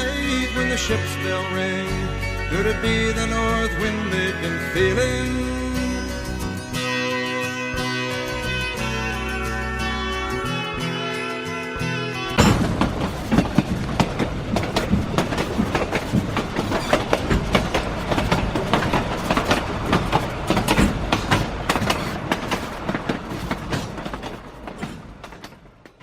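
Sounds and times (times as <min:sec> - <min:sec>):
model train rumble: 0:12.1 - 0:26.0
model train wheels clicking: 0:12.4 - 0:26.0.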